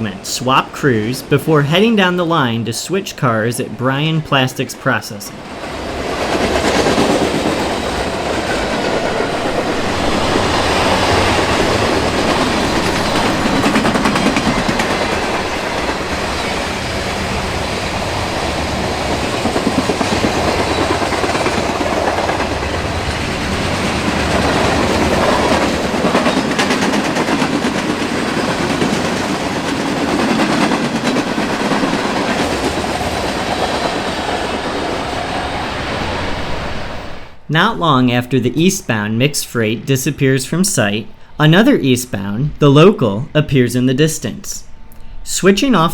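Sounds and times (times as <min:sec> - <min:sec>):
freight train wheels on rails: 0:05.3 - 0:37.4.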